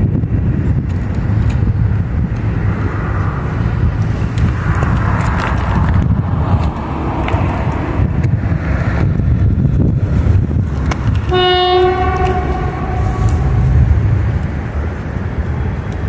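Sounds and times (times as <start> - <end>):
train rumbling past: 1.6 - 16.0
train wheel clicks: 10.3 - 11.4
train horn blast: 11.2 - 14.5.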